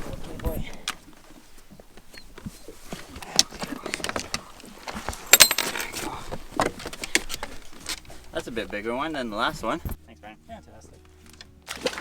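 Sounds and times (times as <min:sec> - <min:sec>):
fishing gear clattering: 0:00.6 - 0:10.0.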